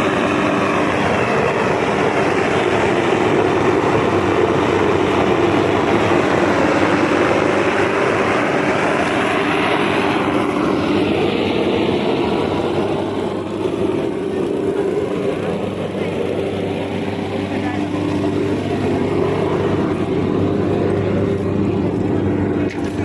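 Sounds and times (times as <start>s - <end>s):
heavy machine running loudly: 0.0s - 23.0s.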